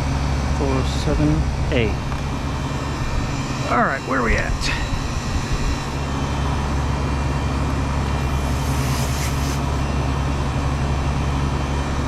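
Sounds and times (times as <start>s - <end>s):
condensing unit humming: 0.0s - 12.0s
brief hiss: 8.2s - 9.9s.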